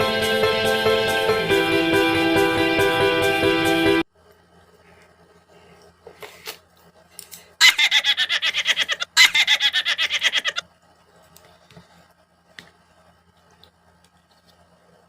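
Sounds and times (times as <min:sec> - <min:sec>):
person laughing: 0:07.6 - 0:10.6.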